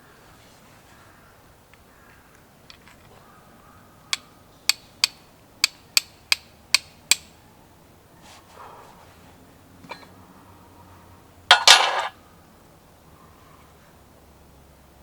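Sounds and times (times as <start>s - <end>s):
sharp taps of hard objects: 11.5s - 12.1s.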